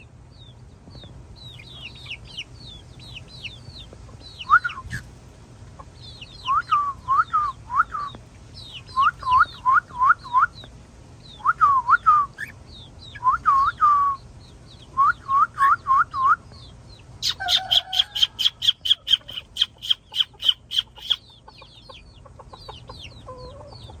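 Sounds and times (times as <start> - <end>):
birds calling: 0.0 - 24.0
high bird chirps: 1.0 - 5.1, 6.0 - 16.4, 17.2 - 22.0.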